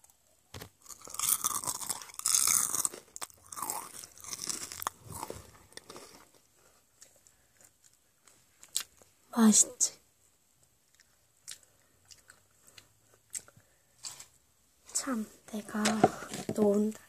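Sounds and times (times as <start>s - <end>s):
crunchy snack being chewed: 0.6s - 9.1s, 10.9s - 14.3s.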